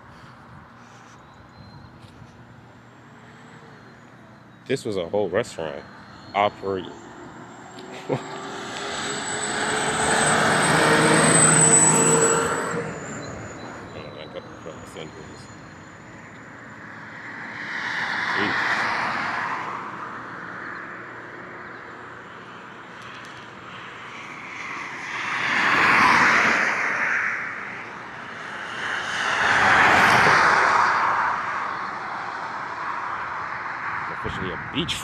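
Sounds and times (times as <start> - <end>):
vehicles passing by: 0.0 - 35.0.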